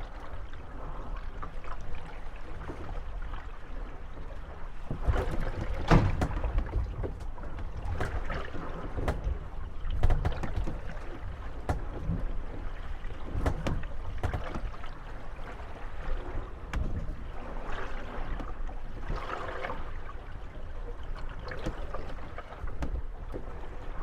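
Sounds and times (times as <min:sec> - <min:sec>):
waves sloshing against hulls: 0:00.0 - 0:24.0
boats knocking together: 0:04.2 - 0:19.7, 0:21.4 - 0:24.0.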